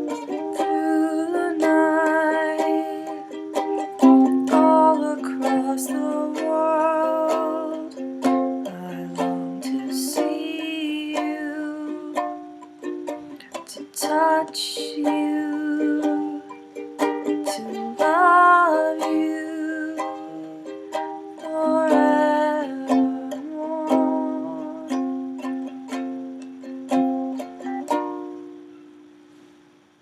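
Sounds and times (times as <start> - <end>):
ukulele strummed and picked: 0.0 - 29.6.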